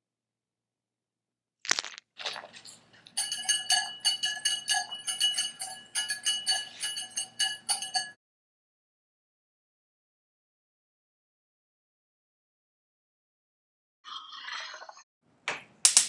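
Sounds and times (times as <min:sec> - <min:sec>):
rapid ringing clinks: 0:03.2 - 0:08.2.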